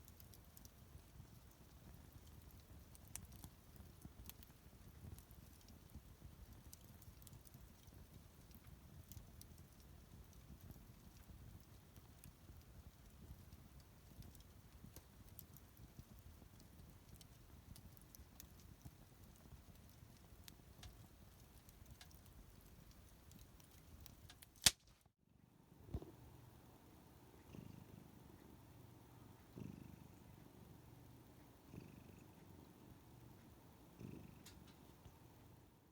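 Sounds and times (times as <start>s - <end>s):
cat purring: 0.0s - 24.4s, 25.7s - 35.8s
wood fire crackling: 0.0s - 25.0s, 34.4s - 35.5s.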